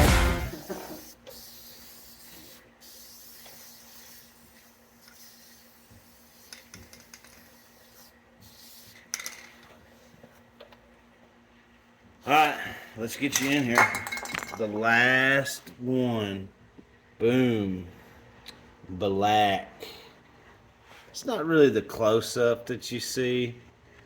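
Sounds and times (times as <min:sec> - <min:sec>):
music: 0:00.0 - 0:00.6.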